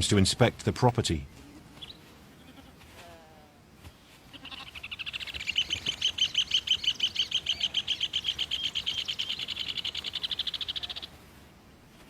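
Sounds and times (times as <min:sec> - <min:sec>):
bird chattering calls: 0:04.4 - 0:11.1.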